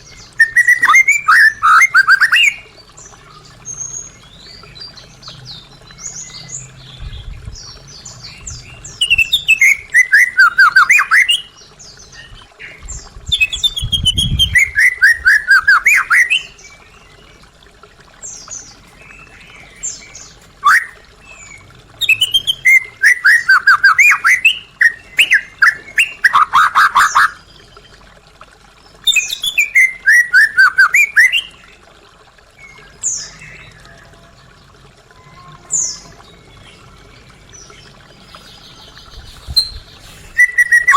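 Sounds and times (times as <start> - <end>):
bird singing rapid notes: 18.3 - 27.4, 37.5 - 40.9
soft bird calls: 18.3 - 28.1.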